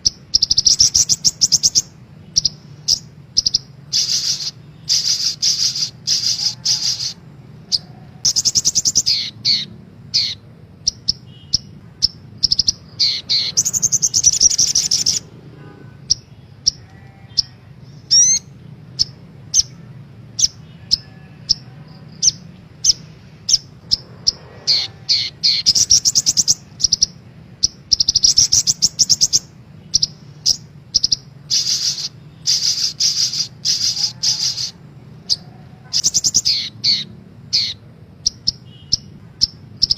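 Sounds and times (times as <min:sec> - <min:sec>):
sharp bird chips: 0:00.0 - 0:15.3, 0:20.4 - 0:39.9
bird chattering trills: 0:00.0 - 0:39.9.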